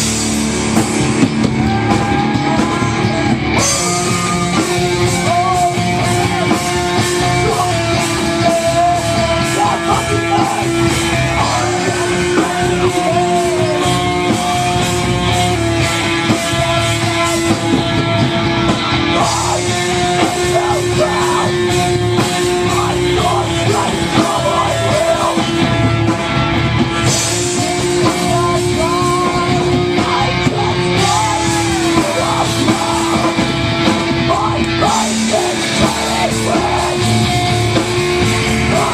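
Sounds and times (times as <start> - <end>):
electric guitar: 0.0 - 38.9
rock band playing live: 0.0 - 38.9.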